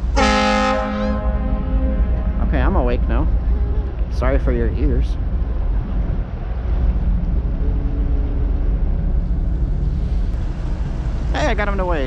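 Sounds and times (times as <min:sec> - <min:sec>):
faint engine drone: 0:00.0 - 0:12.0
ship low rumble: 0:00.0 - 0:12.0
wind buffeting microphone: 0:01.2 - 0:12.0.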